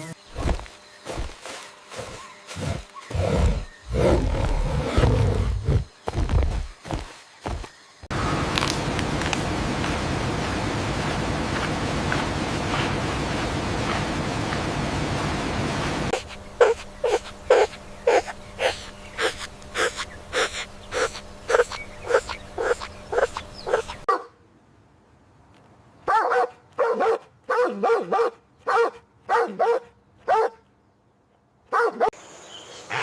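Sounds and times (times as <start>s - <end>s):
steady low hum: 0.0s - 24.1s
animal barking: 16.1s - 24.4s, 26.1s - 30.6s, 31.7s - 32.2s.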